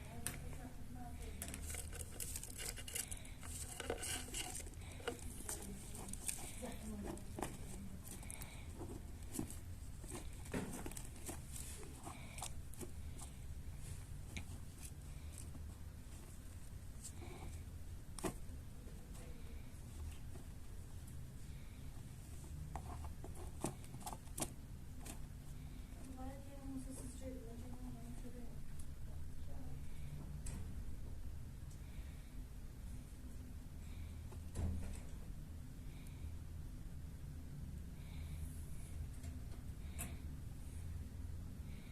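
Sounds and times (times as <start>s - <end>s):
light clicks and scratches: 0.0s - 28.9s
low steady hum: 0.0s - 41.9s.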